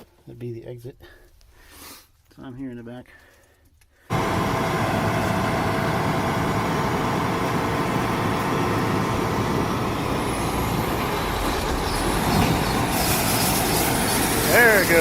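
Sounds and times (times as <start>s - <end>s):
combine harvester running: 4.1s - 15.0s.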